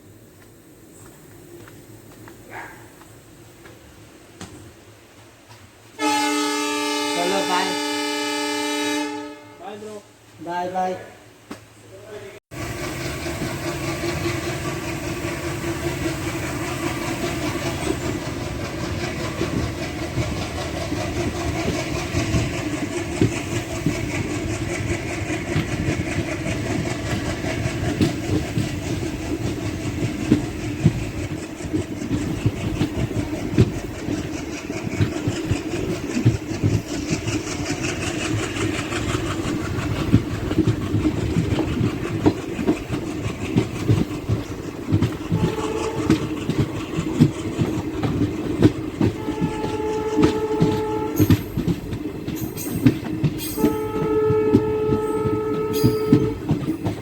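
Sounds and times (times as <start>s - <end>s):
train engine hum: 0.0s - 57.0s
train wheels clattering over rail joints: 12.6s - 57.0s.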